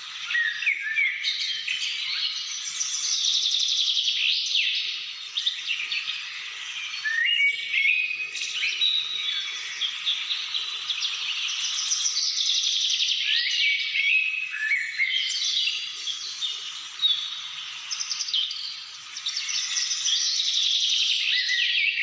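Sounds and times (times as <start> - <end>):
birds chirping in chorus: 0.0 - 22.0
rising whistled bird phrases: 6.8 - 10.3.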